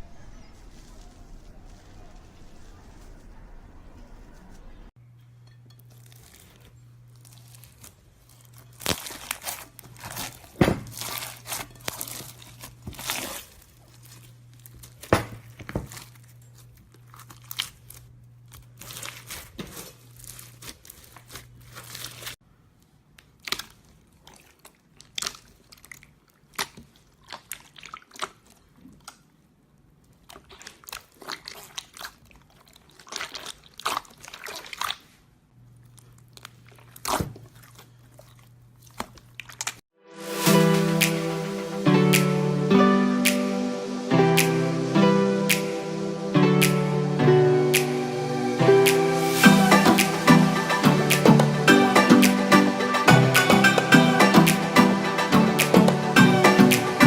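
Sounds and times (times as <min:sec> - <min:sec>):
hands squishing slime: 0:23.2 - 0:29.2, 0:30.2 - 0:35.2.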